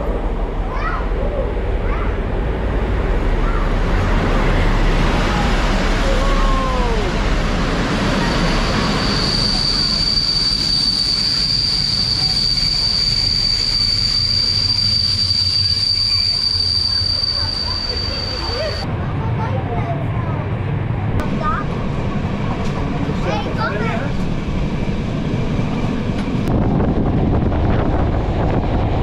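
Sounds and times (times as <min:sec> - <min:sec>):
train rumbling on rails: 0:00.0 - 0:29.0
high-pitched wheel squeal: 0:08.3 - 0:18.9.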